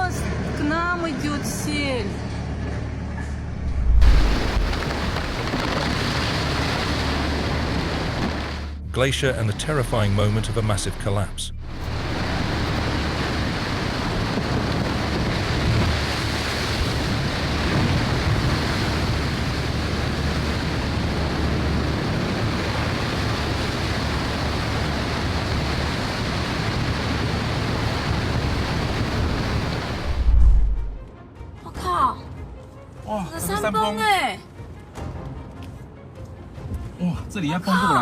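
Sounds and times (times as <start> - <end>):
low rumble: 0.2 - 25.7, 26.8 - 31.2
glacier collapse rushing: 3.6 - 31.1.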